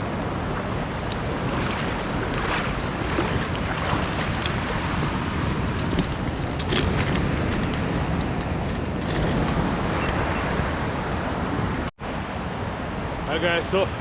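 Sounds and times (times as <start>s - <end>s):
creek water rushing: 0.0s - 6.6s
wind buffeting microphone: 0.0s - 11.9s.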